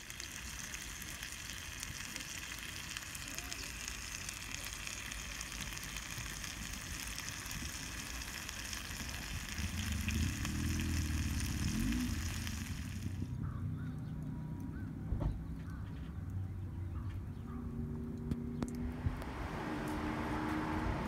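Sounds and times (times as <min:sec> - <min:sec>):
food sizzling in a skillet: 0:00.0 - 0:13.2.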